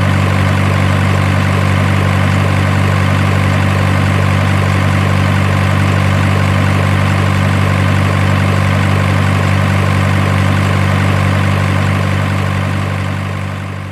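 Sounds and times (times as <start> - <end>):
truck engine idling: 0.0 - 13.9.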